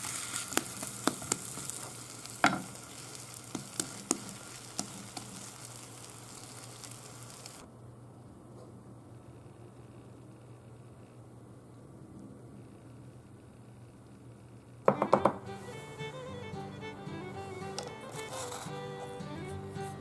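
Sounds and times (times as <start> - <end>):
food sizzling in oil: 0.0 - 7.7, 17.7 - 19.5
faint low hum: 5.8 - 18.0.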